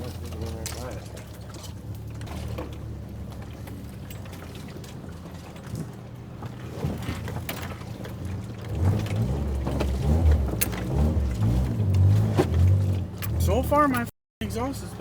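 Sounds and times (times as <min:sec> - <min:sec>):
car engine revving: 0:08.6 - 0:14.7.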